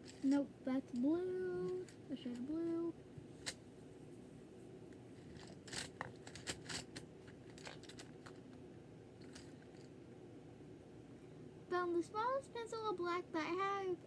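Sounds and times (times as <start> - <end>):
pencils clicking and clattering: 0.0 - 3.6, 5.2 - 8.6, 9.2 - 9.9
low steady hum: 0.0 - 14.0.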